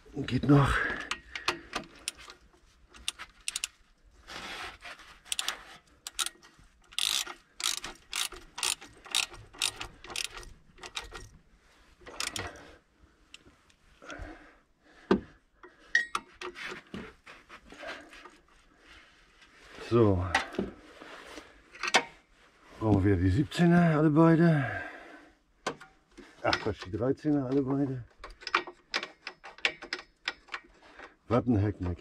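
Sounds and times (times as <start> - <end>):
ratchet wrench clicking: 1.9 - 2.3, 3.0 - 3.8, 5.3 - 11.3, 12.1 - 12.6
tools clinking on metal: 12.1 - 12.6.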